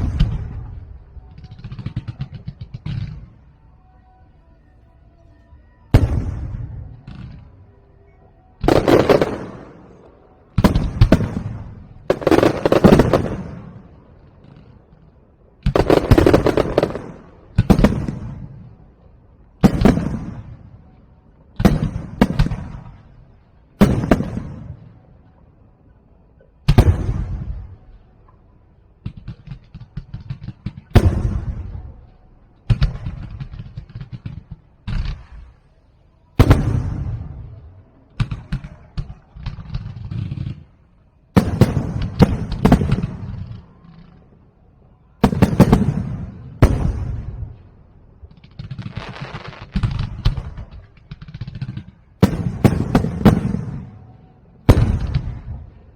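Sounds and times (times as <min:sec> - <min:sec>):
firework shells bursting with bangs: 0:08.6 - 0:14.9, 0:48.3 - 0:55.9
crackling firework pops: 0:48.3 - 0:53.7.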